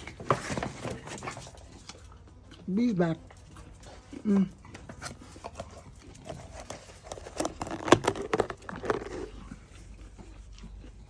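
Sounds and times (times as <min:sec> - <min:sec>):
rustling: 0:03.4 - 0:11.0.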